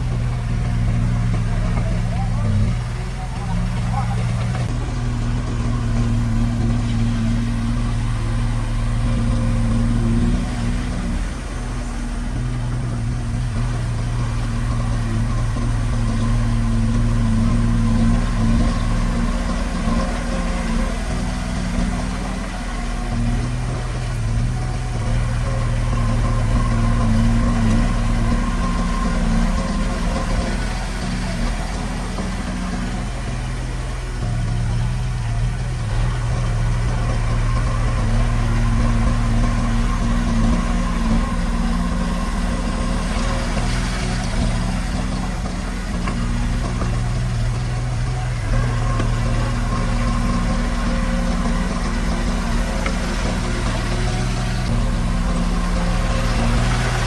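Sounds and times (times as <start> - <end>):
construction machine diesel engine: 0.0 - 57.0.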